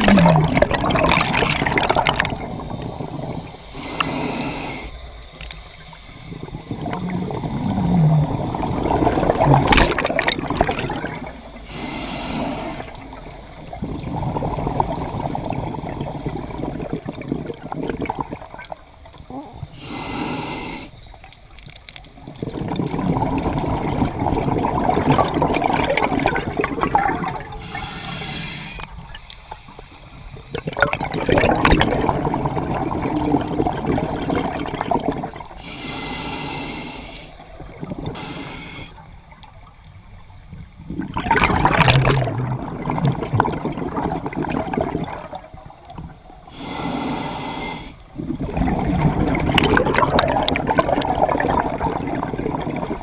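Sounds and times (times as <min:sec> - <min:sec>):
exhaled bubbles rushing: 0:00.0 - 0:04.1, 0:05.4 - 0:11.8, 0:12.7 - 0:19.8, 0:22.0 - 0:28.2, 0:30.4 - 0:35.6, 0:37.4 - 0:38.3, 0:40.6 - 0:46.5, 0:48.2 - 0:53.0
regulator inhale hiss: 0:02.6 - 0:06.5, 0:11.6 - 0:16.5, 0:19.6 - 0:21.2, 0:27.4 - 0:30.7, 0:35.5 - 0:39.3, 0:46.4 - 0:48.5.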